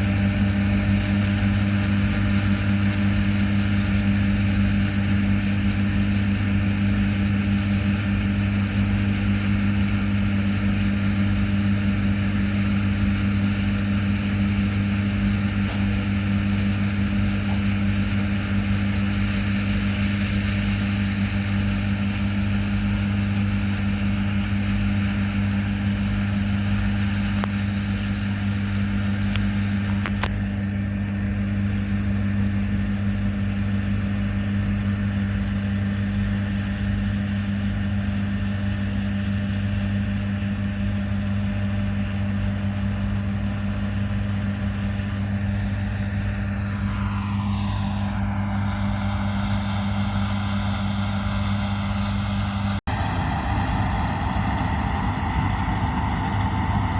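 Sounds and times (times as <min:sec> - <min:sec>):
large diesel engine droning: 0:40.0 - 0:56.9
high whine sweeping in pitch: 0:44.8 - 0:56.9.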